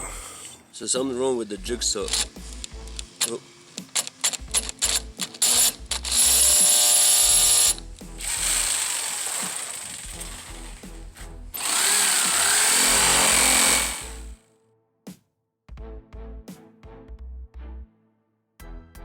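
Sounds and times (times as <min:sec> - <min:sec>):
jigsaw cutting plywood: 0:02.0 - 0:14.4.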